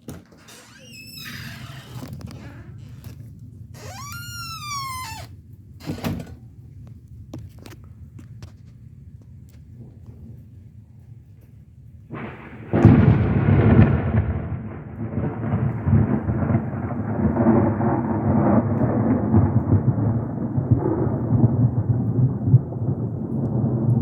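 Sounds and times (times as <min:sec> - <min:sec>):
rumble of thunder: 0:05.7 - 0:24.0
thunderclap: 0:12.1 - 0:24.0.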